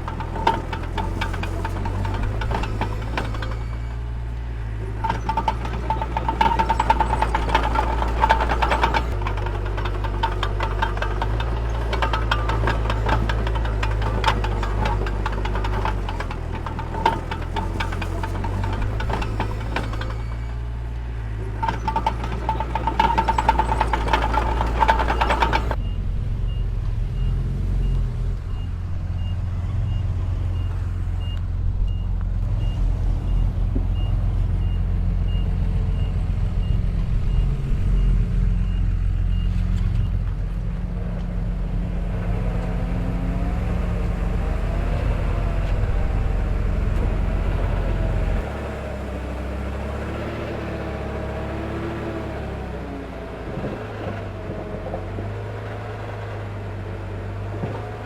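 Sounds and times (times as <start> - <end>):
dense metallic clatter: 0.0 - 25.8
low diesel engine drone: 0.0 - 58.0.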